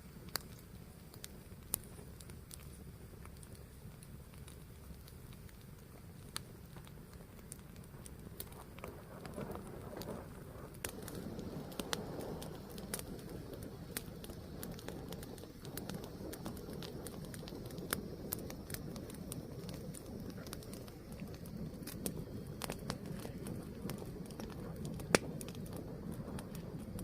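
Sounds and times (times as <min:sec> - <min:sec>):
low rumble of flame: 0:00.0 - 0:27.0
wood fire crackling and popping: 0:00.0 - 0:27.0.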